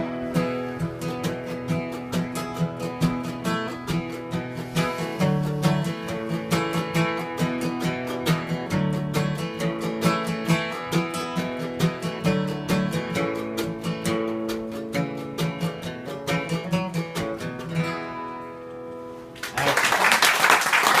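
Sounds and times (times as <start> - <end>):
acoustic guitar picking: 0.0 - 19.4
loud applause: 19.4 - 21.0.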